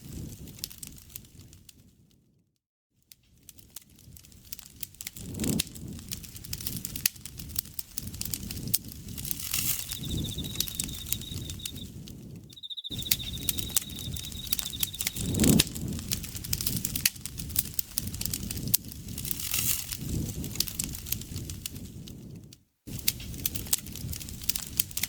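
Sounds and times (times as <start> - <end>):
campfire crackling and popping: 3.4 - 25.0
pulsing insect trill: 9.5 - 11.9, 12.6 - 15.5.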